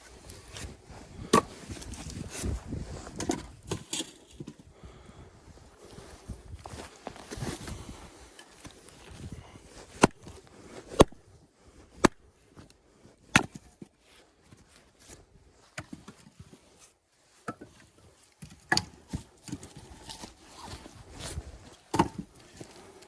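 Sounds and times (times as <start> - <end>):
axe chopping firewood: 1.2 - 1.6, 9.9 - 11.2, 12.0 - 12.3, 13.2 - 13.9, 18.4 - 19.8, 21.9 - 22.4.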